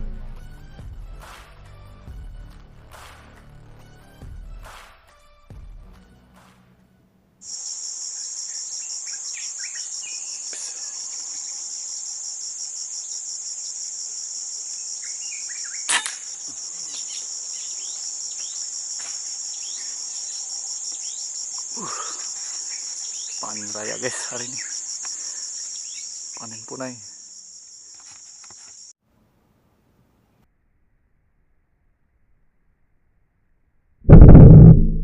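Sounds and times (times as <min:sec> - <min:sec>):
insects droning: 0:07.4 - 0:29.0
bird chirps: 0:08.1 - 0:11.0, 0:15.0 - 0:15.9
sharp crack: 0:15.9 - 0:16.3, 0:34.1 - 0:35.0.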